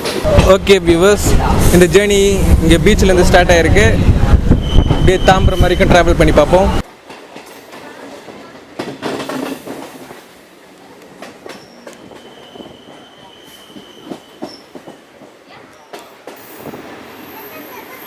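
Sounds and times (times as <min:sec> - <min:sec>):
train wheels clicking over rail joints: 0:07.0 - 0:10.4.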